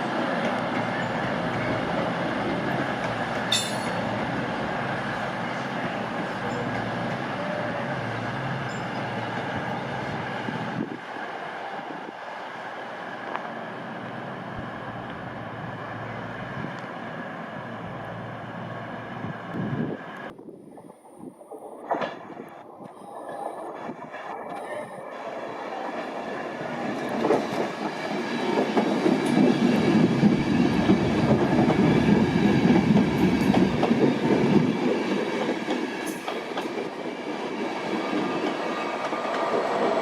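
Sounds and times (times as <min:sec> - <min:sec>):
train wheels rumbling: 0:21.4 - 0:40.0.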